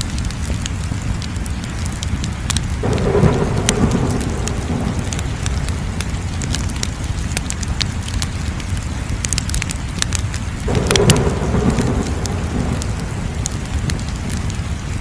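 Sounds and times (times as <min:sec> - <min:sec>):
wood fire crackling and popping: 0:00.0 - 0:15.0
loud rushing noise: 0:02.8 - 0:07.1, 0:10.7 - 0:14.8.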